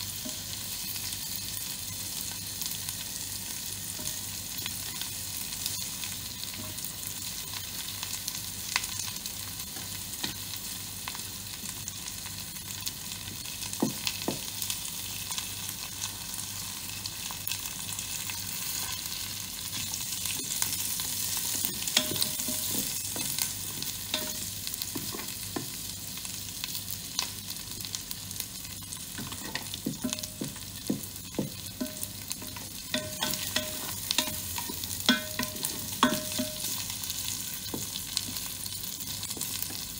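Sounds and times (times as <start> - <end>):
spices sizzling in hot oil: 0.0 - 39.9
spatula scraping and tapping pot: 21.6 - 25.7, 29.2 - 36.8.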